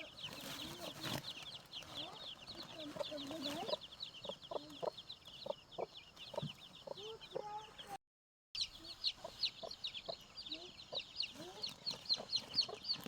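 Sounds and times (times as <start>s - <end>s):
birds chirping: 0.0s - 8.0s, 8.6s - 13.0s.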